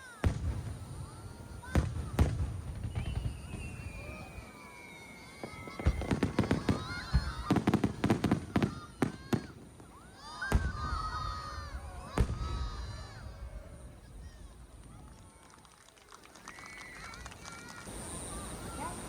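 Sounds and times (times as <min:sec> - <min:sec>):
firework whistle falling: 0:00.0 - 0:15.6
firework cracks and bangs: 0:00.0 - 0:18.9
spectators' voices: 0:00.0 - 0:19.0.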